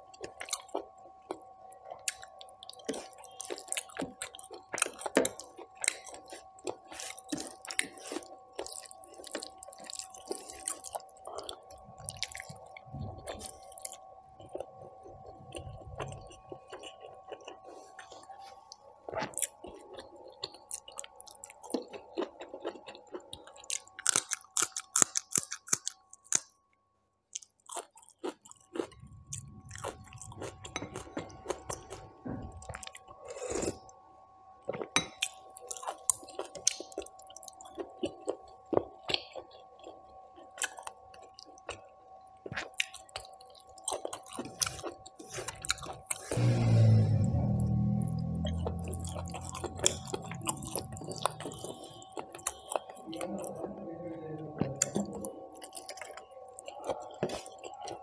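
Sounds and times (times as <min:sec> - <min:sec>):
person chewing: 0:00.0 - 0:18.4, 0:19.0 - 0:26.5, 0:27.3 - 0:33.9, 0:34.6 - 0:53.6, 0:54.8 - 0:58.0
faint hum: 0:00.0 - 0:24.8, 0:28.4 - 0:58.0.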